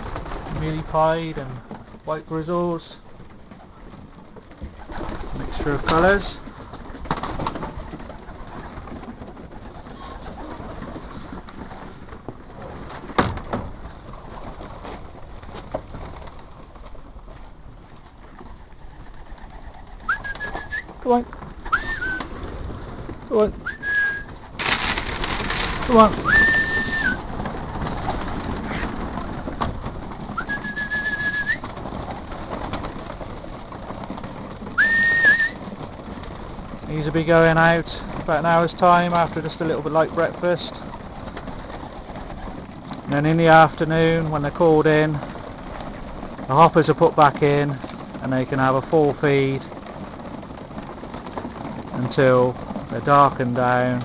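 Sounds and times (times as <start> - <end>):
pigeons cooing: 1.2 - 13.3, 16.2 - 36.8
person whistling: 20.1 - 20.9, 21.7 - 22.2, 23.7 - 24.3, 26.2 - 27.2, 30.4 - 31.6, 34.8 - 35.6.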